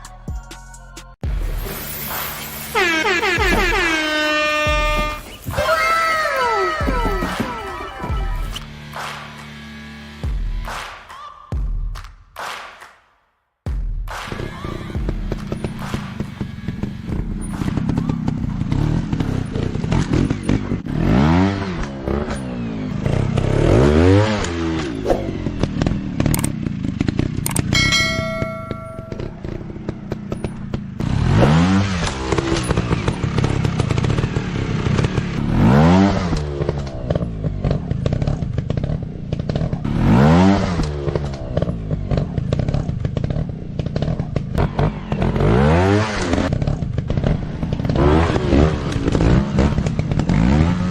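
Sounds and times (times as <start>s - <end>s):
dirt bike engine revving: 1.3s - 10.4s, 14.4s - 50.9s
short steady tone: 27.8s - 29.6s.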